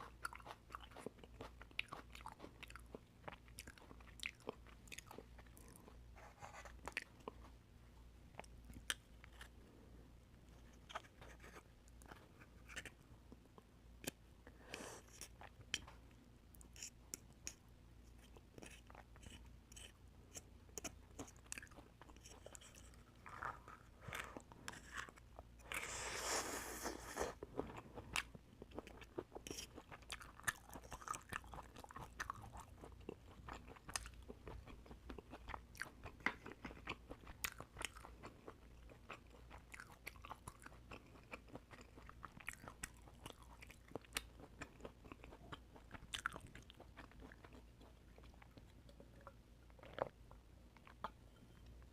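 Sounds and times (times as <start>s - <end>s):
wet chewing: 18.2s - 51.2s.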